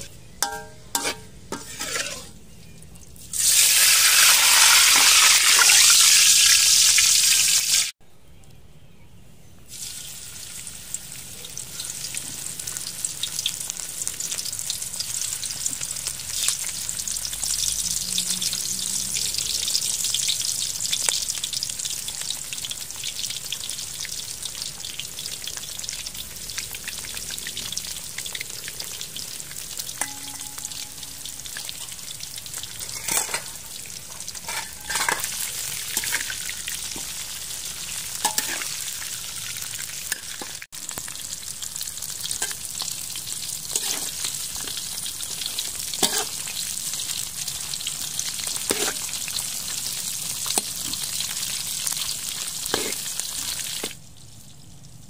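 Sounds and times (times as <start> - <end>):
metal spatula scraping a wok: 0.0 - 2.4, 30.0 - 39.0, 43.6 - 47.1, 48.4 - 49.8, 52.6 - 53.9
fish sizzling in hot oil: 3.2 - 7.9, 9.7 - 55.0.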